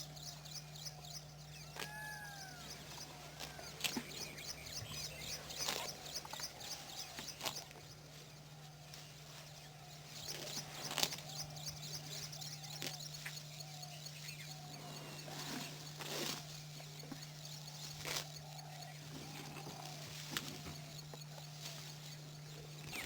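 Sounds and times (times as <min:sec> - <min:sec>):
birds chirping: 0:00.0 - 0:23.0
steady low hum: 0:00.0 - 0:23.0.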